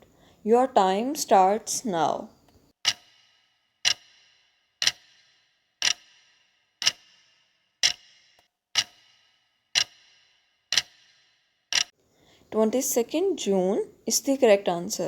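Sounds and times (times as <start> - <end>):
clock ticking: 2.8 - 12.0.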